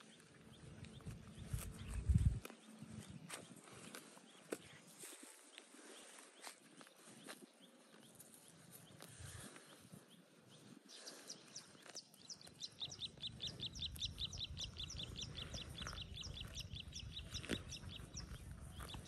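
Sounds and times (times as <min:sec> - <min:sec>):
bird chirping: 0:06.0 - 0:19.0.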